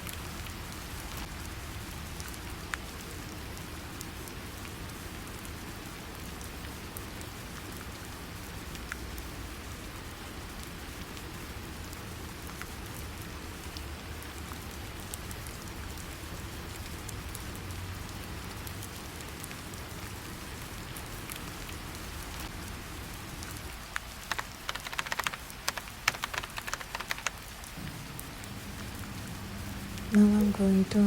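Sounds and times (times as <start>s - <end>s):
low steady hum: 0.0s - 31.0s
steady rain falling: 0.0s - 31.0s
sharp clicks and taps: 23.9s - 27.4s.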